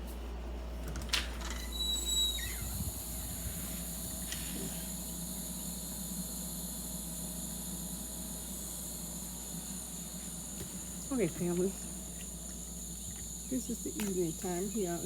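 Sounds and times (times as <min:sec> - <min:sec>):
crickets trilling: 0:01.4 - 0:15.0
brief squeak: 0:01.5 - 0:02.9.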